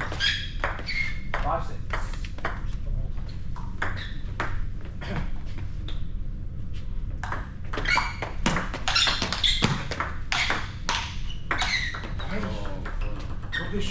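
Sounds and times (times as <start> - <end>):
table tennis ball rally: 3.6 - 4.7, 7.2 - 13.9.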